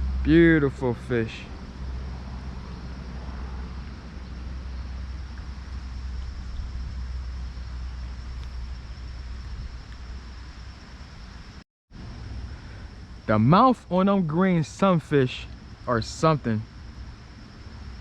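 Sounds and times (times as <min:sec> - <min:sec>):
faint hiss: 0:00.0 - 0:18.0.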